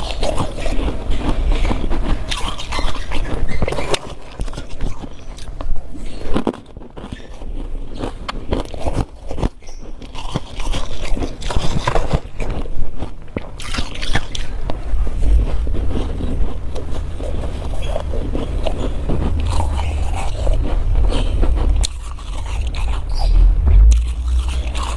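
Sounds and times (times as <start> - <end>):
frost being chewed: 0.0 - 24.9
low rumble: 18.5 - 24.9.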